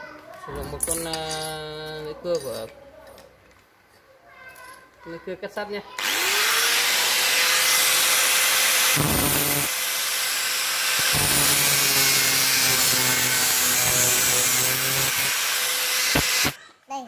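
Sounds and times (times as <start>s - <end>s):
power tool grinding steel: 6.0s - 16.6s.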